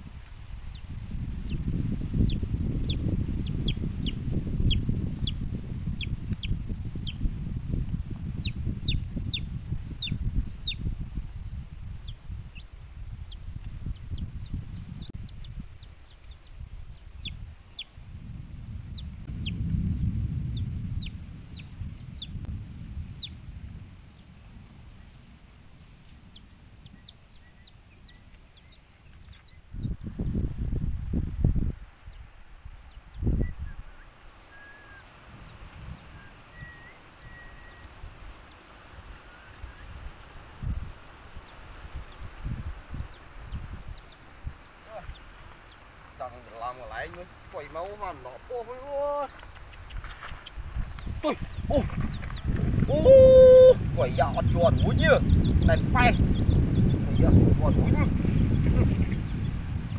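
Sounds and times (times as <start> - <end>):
small birds peeping: 0.0 - 59.9
low rumbling noise: 18.0 - 26.8.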